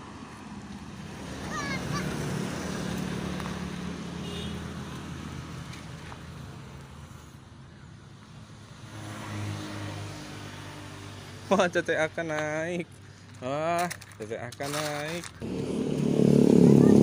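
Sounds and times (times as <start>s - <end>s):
large vehicle engine running: 15.4s - 17.0s.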